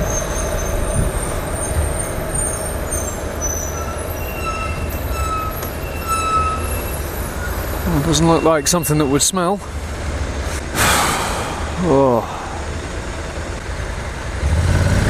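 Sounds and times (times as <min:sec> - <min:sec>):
faint high-pitched squeals: 0:00.0 - 0:09.4
traffic engine rumble: 0:00.0 - 0:15.0.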